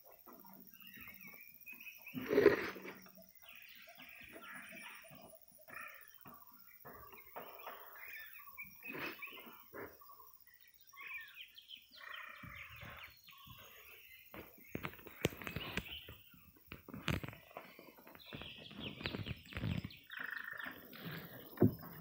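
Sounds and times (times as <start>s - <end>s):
birds calling and chirping: 0.0s - 22.0s.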